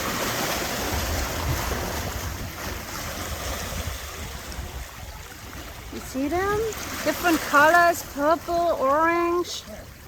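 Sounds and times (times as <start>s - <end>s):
wind rumbling on microphone: 0.0s - 8.8s
surf washing against rocks: 0.0s - 10.0s.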